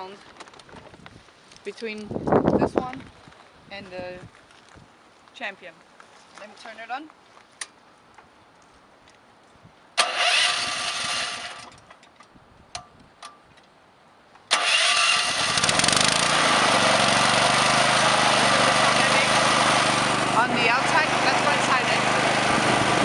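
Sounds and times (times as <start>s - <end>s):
generator engine starting and running: 10.0s - 11.8s, 14.5s - 23.0s.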